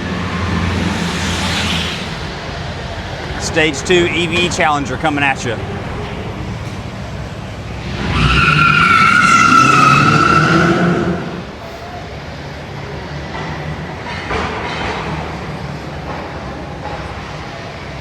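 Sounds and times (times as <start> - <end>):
car accelerating past: 0.0 - 11.6
synthetic engine drone: 0.0 - 11.7
tyres squealing: 3.1 - 12.1.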